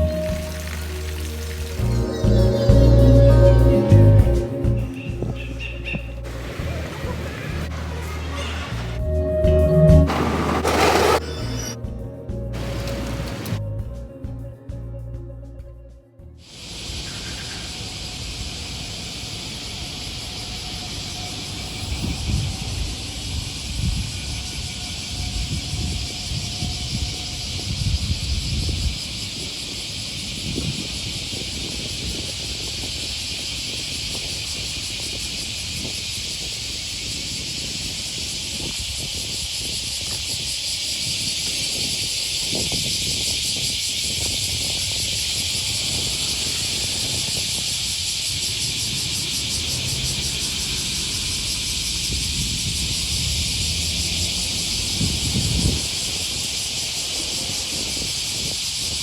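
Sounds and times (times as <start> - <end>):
cicadas singing: 0.0 - 14.3, 16.4 - 59.0.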